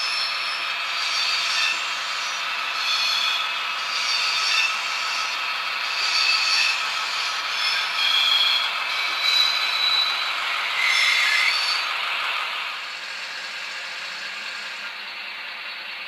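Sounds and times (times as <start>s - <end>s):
short high squeals: 0.0s - 11.9s.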